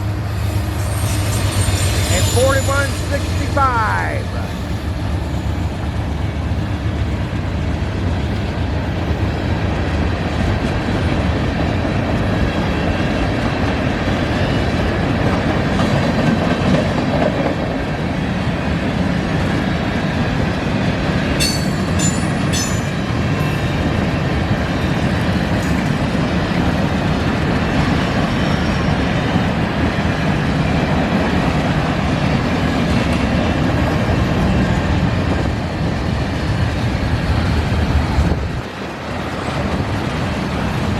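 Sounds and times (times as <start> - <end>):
train wheels rumbling on rail: 0.0 - 40.9
high squeaks: 0.8 - 3.5.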